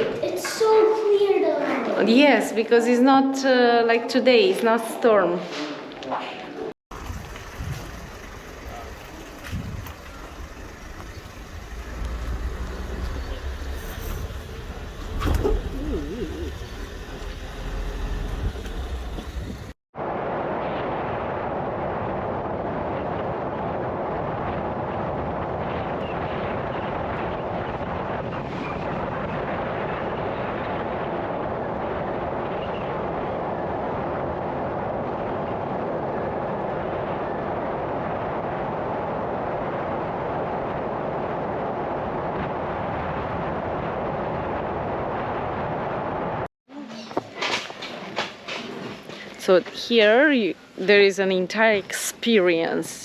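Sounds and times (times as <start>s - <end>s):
vehicle road and engine noise: 6.9s - 19.8s.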